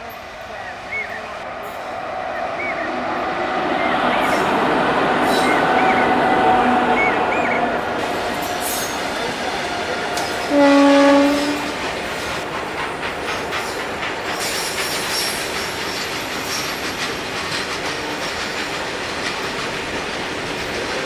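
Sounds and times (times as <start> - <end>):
train wheels clattering on rails: 0.0 - 21.0
locomotive horn blast: 0.5 - 11.9.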